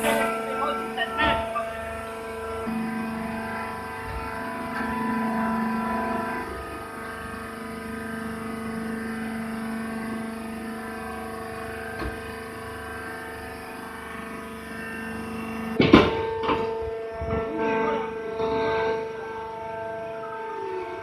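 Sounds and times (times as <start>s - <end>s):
hydraulic baler press humming: 0.0s - 21.0s
loud knocks: 15.8s - 17.5s.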